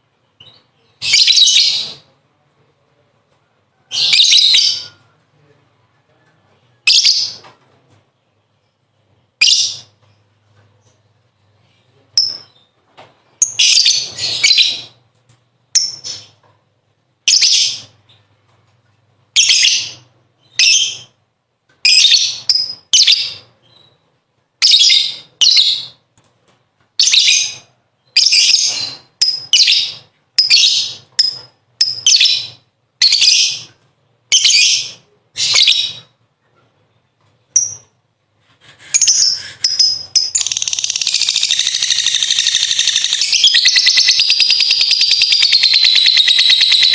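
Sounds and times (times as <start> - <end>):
lovebird shrill chattering: 39.0 - 46.9.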